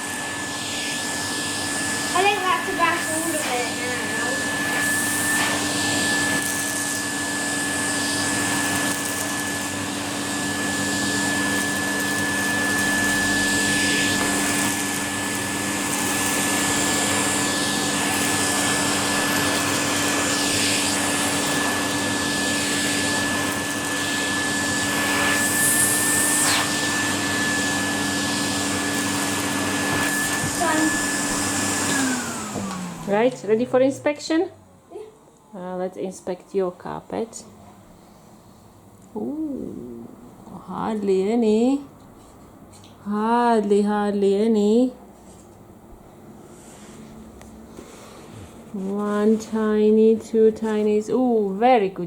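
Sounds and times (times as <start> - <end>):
vacuum sucking up small stones: 0.0 - 33.2
vacuum cleaner running: 0.0 - 41.9, 45.8 - 52.0.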